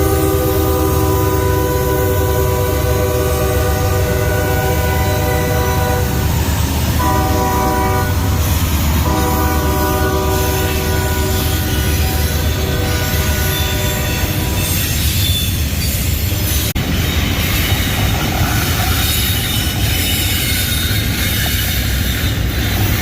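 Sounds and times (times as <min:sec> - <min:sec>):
locomotive air horn blasts: 0:00.0 - 0:14.9
low rumble of passing train: 0:00.0 - 0:23.0.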